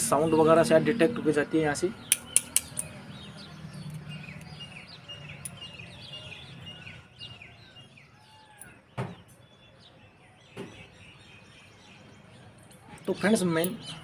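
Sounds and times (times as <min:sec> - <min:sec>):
small birds chirping: 0:00.0 - 0:14.0
sharp click: 0:02.1 - 0:03.0.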